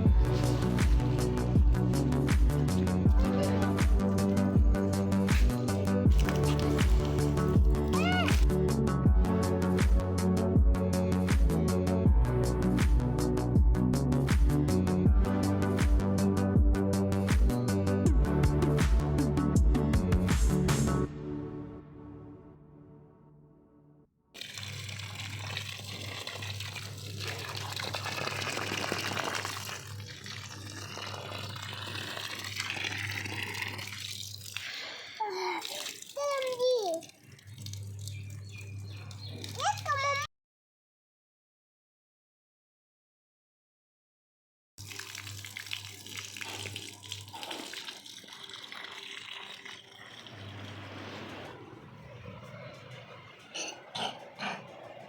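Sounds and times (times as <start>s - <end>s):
water gushing and splashing: 0.0s - 8.6s, 24.4s - 40.2s, 44.8s - 51.6s
low hum: 50.3s - 55.0s.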